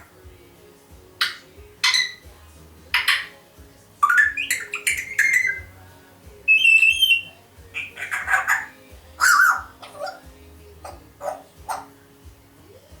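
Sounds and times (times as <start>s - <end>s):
parrot squawking and whistling: 1.2s - 2.3s, 2.9s - 3.4s, 4.0s - 5.7s, 6.5s - 10.2s, 10.8s - 11.9s.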